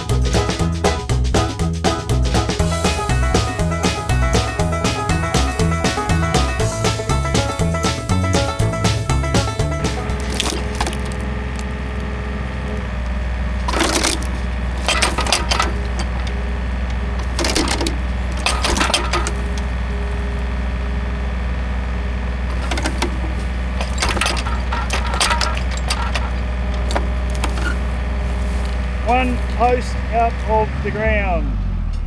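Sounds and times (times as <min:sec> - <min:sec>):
wood cracking and splintering: 0:07.3 - 0:20.6, 0:22.5 - 0:30.2.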